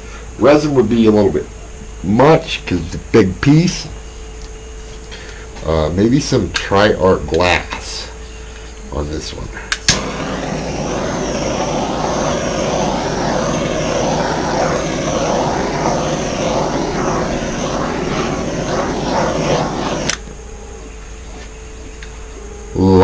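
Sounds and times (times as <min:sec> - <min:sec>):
heat gun blowing: 0:09.9 - 0:20.4.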